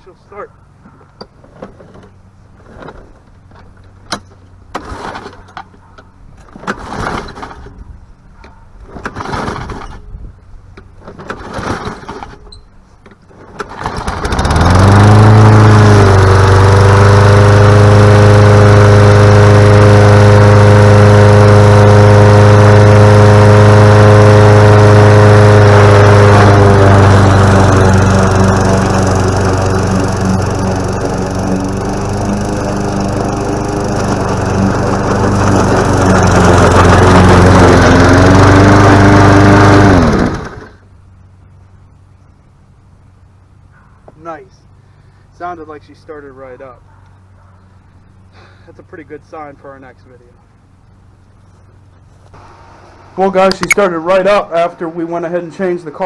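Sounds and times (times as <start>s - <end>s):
lawn mower engine running: 0.6s - 8.1s, 8.8s - 43.7s, 50.6s - 54.7s
knocks and rustles: 0.8s - 13.9s.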